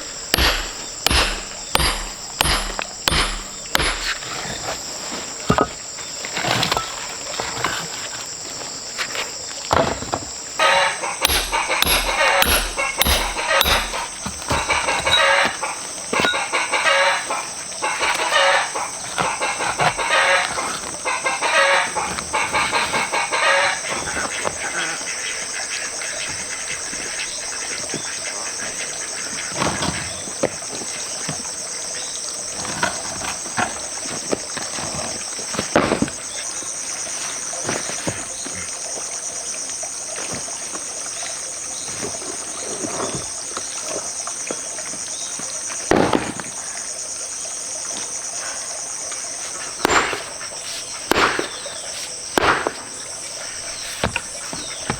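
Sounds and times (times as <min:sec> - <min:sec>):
sharp knocks: 0:00.0 - 0:04.4, 0:11.2 - 0:15.6, 0:49.8 - 0:53.0
high-pitched insect chorus: 0:00.0 - 0:54.9.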